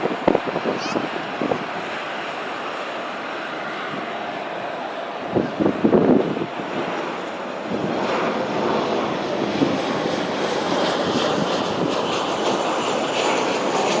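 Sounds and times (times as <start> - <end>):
airliner jet engines landing: 0.0 - 14.0.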